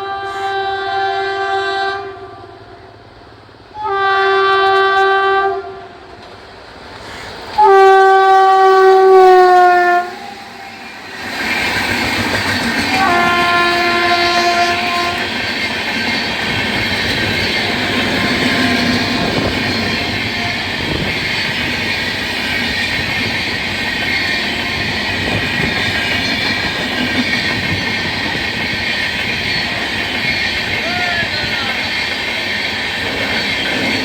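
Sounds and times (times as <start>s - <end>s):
train horn blast: 0.0s - 6.4s, 7.6s - 11.1s, 12.7s - 15.5s, 17.0s - 21.2s, 24.0s - 26.8s
train wheels rumbling on rail: 0.0s - 34.0s
clacks over rail joints: 11.2s - 34.0s.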